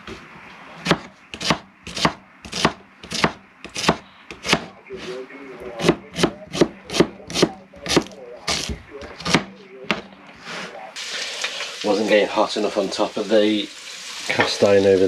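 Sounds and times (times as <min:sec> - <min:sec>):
knife chopping vegetables on board: 0:00.8 - 0:04.7, 0:05.8 - 0:10.1.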